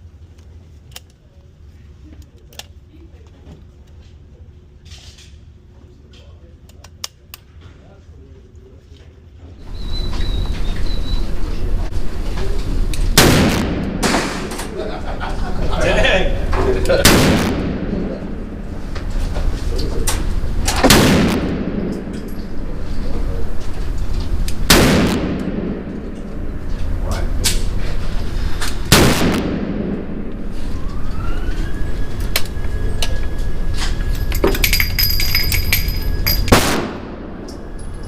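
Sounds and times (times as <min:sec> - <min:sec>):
faint thin whistle-like tone: 0:09.7 - 0:11.5
revolver shots with echo: 0:13.1 - 0:14.8, 0:17.0 - 0:18.5, 0:20.7 - 0:22.2, 0:24.6 - 0:26.2, 0:28.8 - 0:30.4.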